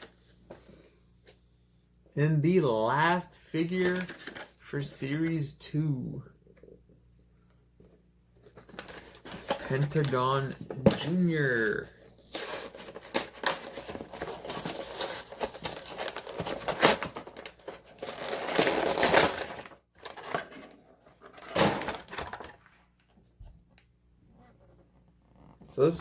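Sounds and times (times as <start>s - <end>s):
plastic and cardboard packaging tearing: 12.3s - 20.7s.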